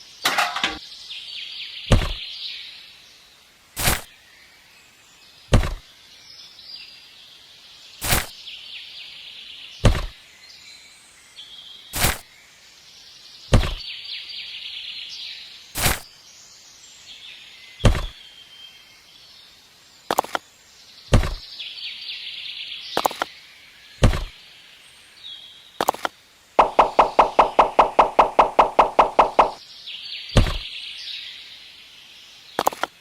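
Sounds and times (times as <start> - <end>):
sharp knocks: 1.9 - 2.2, 5.5 - 5.8, 9.8 - 10.2, 13.5 - 13.8, 17.8 - 18.1, 21.1 - 21.4, 24.0 - 24.3, 26.6 - 29.6, 30.4 - 30.7
high chirping: 26.6 - 29.6.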